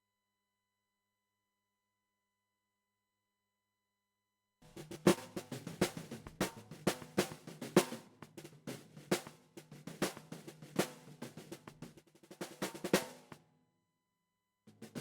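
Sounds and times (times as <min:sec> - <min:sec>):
drum kit groove: 0:04.7 - 0:13.4, 0:14.7 - 0:15.0.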